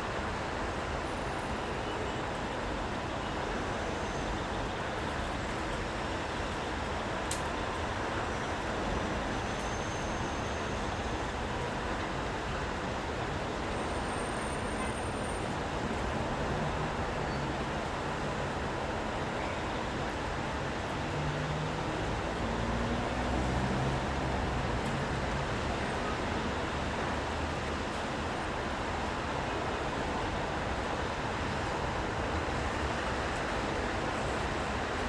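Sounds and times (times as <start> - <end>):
rain hiss on street: 0.0 - 35.0
vehicle engines humming: 20.6 - 26.1.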